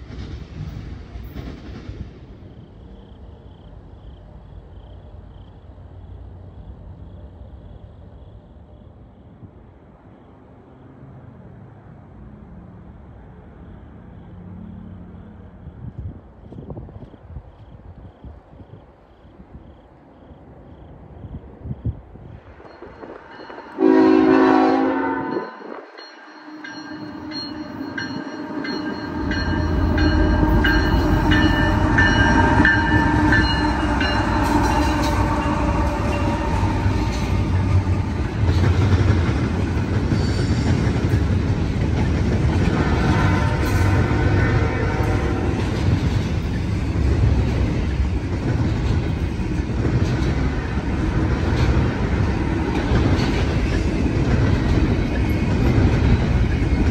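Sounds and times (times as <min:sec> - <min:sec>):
diesel engines: 0:00.0 - 0:56.9
train air horn blast: 0:23.8 - 0:25.9, 0:26.9 - 0:38.6, 0:42.7 - 0:45.7
freight cars rumbling and clacking: 0:25.8 - 0:56.9.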